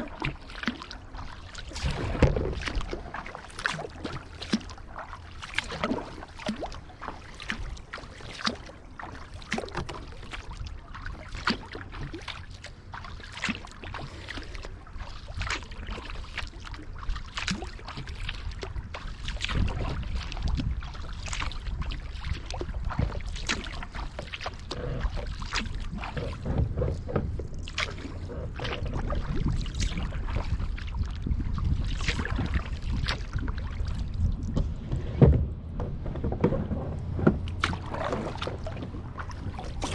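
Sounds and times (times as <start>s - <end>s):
drips and small splashes: 0.0s - 34.8s, 36.1s - 39.9s
paddle strokes in water: 0.0s - 39.9s
low rumble: 24.6s - 39.9s.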